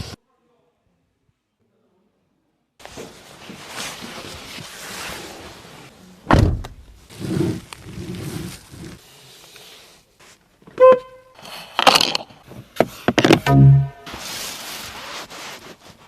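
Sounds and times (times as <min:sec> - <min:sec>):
car door shutting: 0:06.3 - 0:06.9
short beep: 0:13.4 - 0:14.2.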